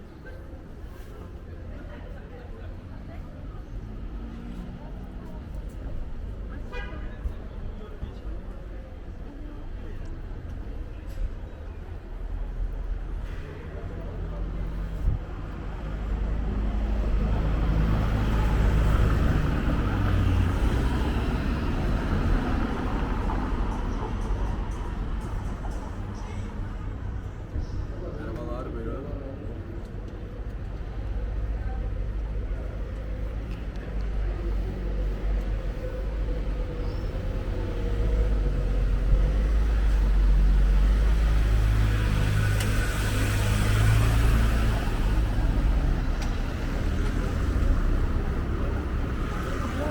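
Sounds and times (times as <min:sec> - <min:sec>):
vehicle engine rumbling: 0:10.1 - 0:49.9.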